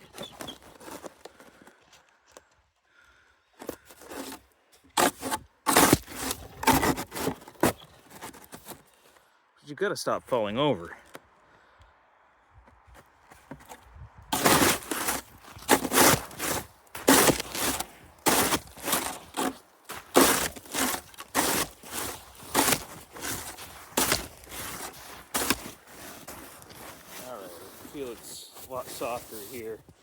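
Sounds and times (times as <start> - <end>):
snow crunching: 5.0 - 9.2, 14.4 - 30.0.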